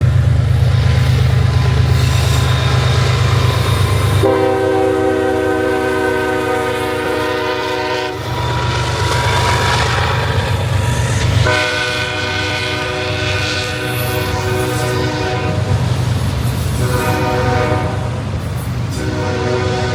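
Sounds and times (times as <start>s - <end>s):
locomotive engine rumbling: 0.0s - 19.9s
locomotive horn blast: 4.0s - 9.8s, 11.4s - 15.8s, 16.8s - 18.2s, 18.9s - 19.9s.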